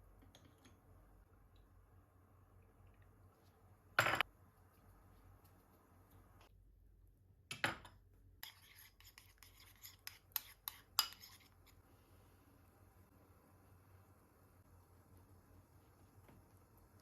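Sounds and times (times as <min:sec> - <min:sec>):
tableware clinking and clattering: 0:04.0 - 0:04.2.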